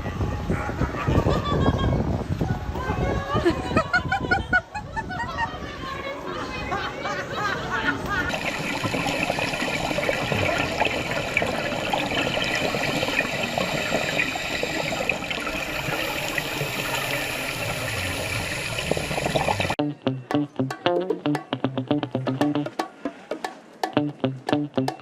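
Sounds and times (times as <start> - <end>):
water rushing and splashing: 8.3 - 19.8
plucked guitar music: 19.8 - 22.8, 23.8 - 25.0.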